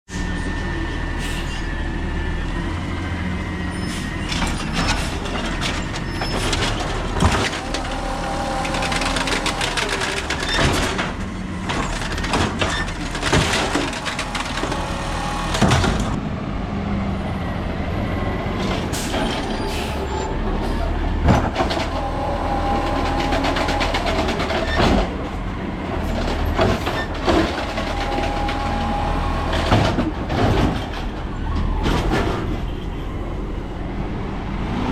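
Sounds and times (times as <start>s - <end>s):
truck engine running: 1.8s - 19.5s
hydraulic whining tones: 3.6s - 16.2s, 19.4s - 25.0s, 26.9s - 30.0s
loader slamming bangs: 4.0s - 16.2s, 21.1s - 25.3s.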